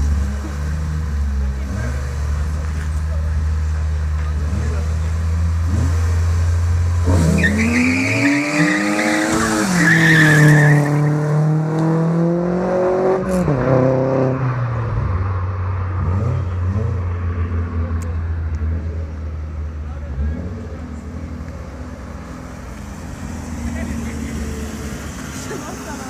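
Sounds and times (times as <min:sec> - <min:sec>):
car engines accelerating hard: 0:00.0 - 0:26.0.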